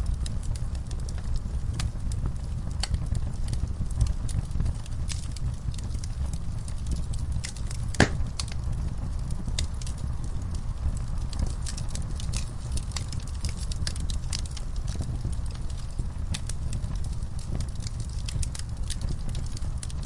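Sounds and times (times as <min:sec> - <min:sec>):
wood fire crackling: 0:00.0 - 0:20.0
sharp pop from fire: 0:07.6 - 0:08.5.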